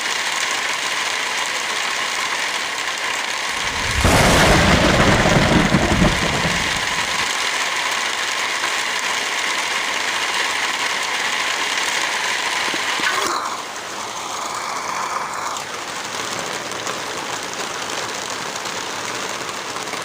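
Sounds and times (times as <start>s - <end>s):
heavy rain: 0.0s - 20.0s
deep rumble: 3.6s - 7.2s.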